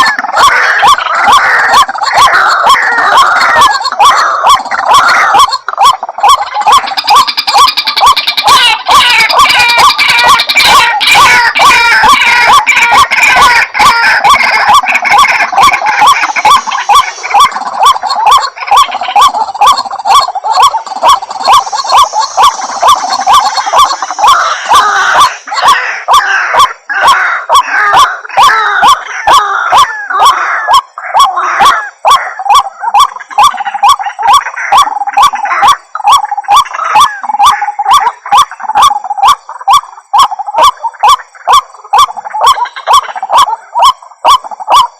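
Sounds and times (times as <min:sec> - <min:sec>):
waterhen calling: 0:00.0 - 0:44.9.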